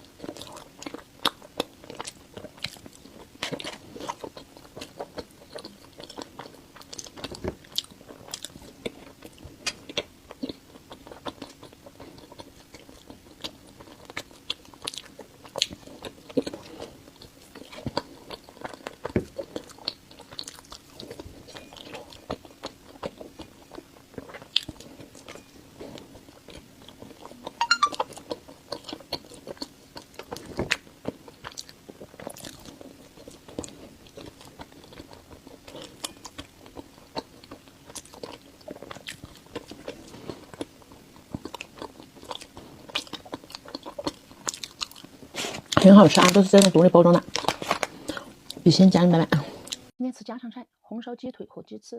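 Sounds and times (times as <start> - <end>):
faint steady hum: 0.0 - 51.9
mouth clicks and smacks chewing: 4.1 - 25.4.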